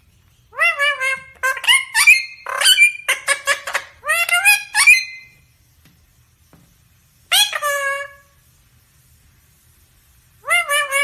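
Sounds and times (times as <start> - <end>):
parrot squawking: 0.5 - 5.4, 7.3 - 8.4, 10.4 - 11.0.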